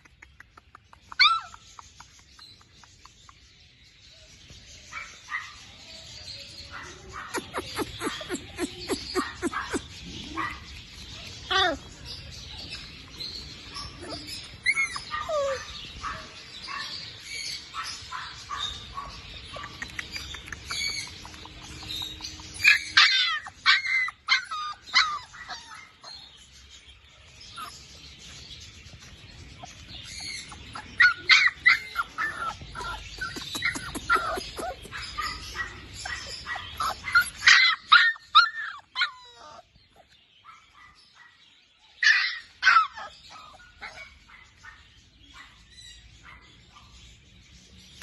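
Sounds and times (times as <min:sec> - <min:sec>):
puppies whining and yelping: 0:00.9 - 0:02.8, 0:07.1 - 0:17.9, 0:18.5 - 0:41.0, 0:41.9 - 0:44.8.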